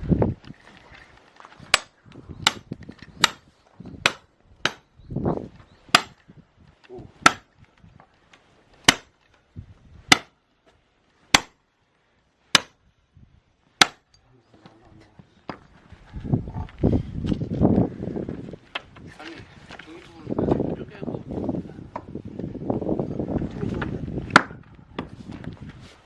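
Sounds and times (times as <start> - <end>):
axe chopping firewood: 1.6 - 4.9, 5.9 - 6.2, 7.2 - 7.5, 8.8 - 9.2, 10.1 - 10.4, 11.3 - 11.6, 12.5 - 12.8, 13.8 - 14.1, 24.3 - 25.1.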